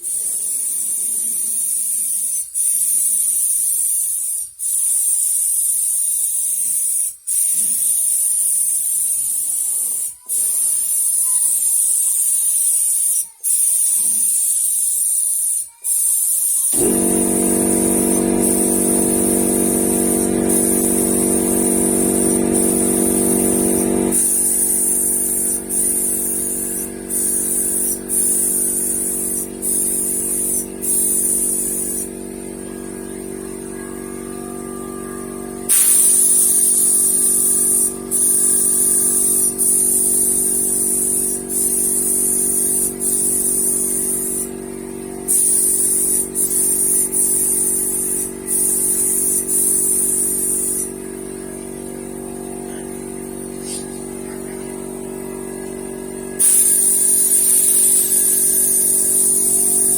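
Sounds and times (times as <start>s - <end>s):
paint spray gun hissing: 0.0s - 34.0s, 35.6s - 54.2s, 56.4s - 59.9s
machine hum: 16.8s - 59.9s.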